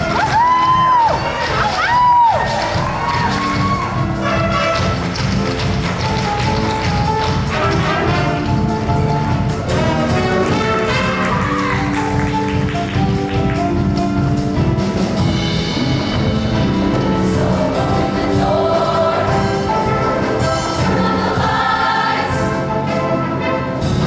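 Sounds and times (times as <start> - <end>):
live band accompaniment: 0.0 - 24.0
choir singing held chords: 15.8 - 24.0.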